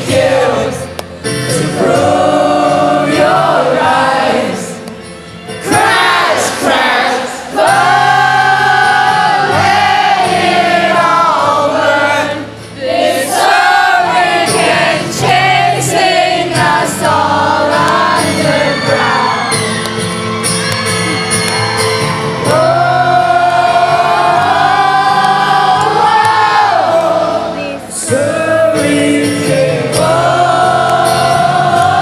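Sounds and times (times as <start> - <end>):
choir-like sung notes: 0.0 - 19.9, 21.8 - 32.0
live rock band music: 14.6 - 26.4.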